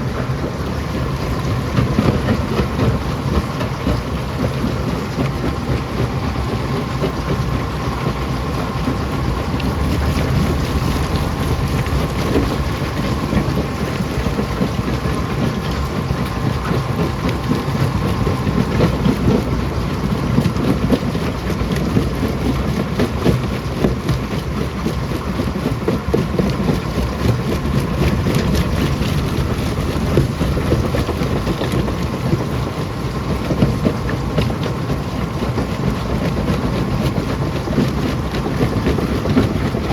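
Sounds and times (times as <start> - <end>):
faint machine hum: 0.0 - 21.1, 26.5 - 34.0.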